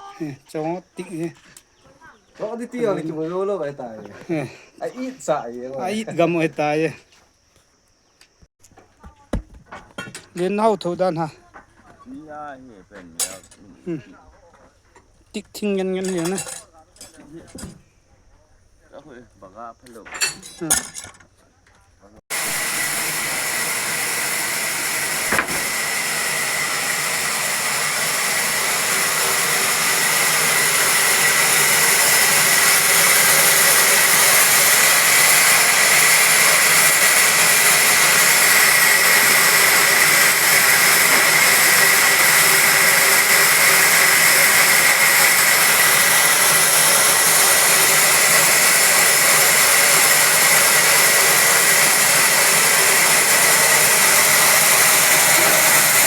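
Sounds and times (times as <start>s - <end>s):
sawmill machinery with high whine: 22.3s - 56.0s.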